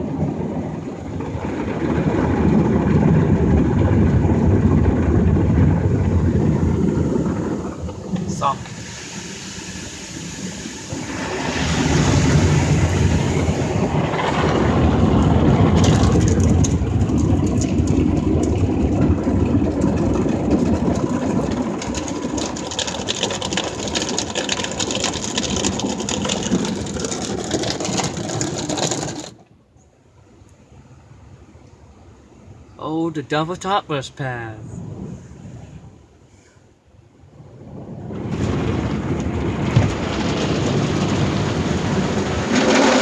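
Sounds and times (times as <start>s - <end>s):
car wash brushes rumbling: 0.0s - 29.5s, 37.4s - 43.0s
water spraying: 6.5s - 14.0s.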